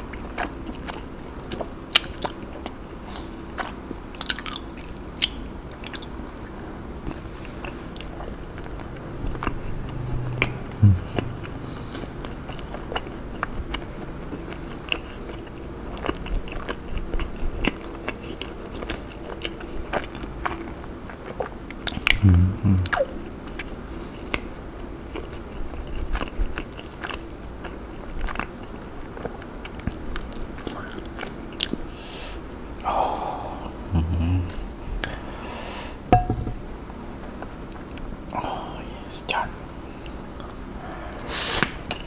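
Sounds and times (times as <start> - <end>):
chewing with wet mouth clicks: 0.0 - 22.2, 22.8 - 31.8
short low hum: 9.0 - 12.5.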